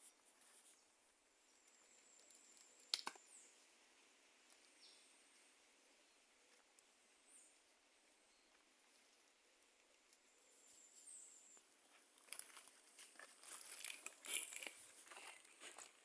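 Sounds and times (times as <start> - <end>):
crackling rustles and snaps: 1.6 - 3.4, 9.0 - 16.0.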